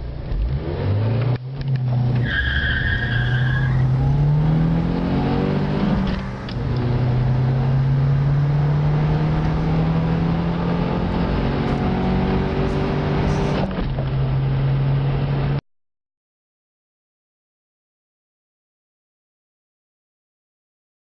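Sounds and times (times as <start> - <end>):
car engine accelerating: 0.2 - 15.6
tyre squeal: 2.0 - 13.7.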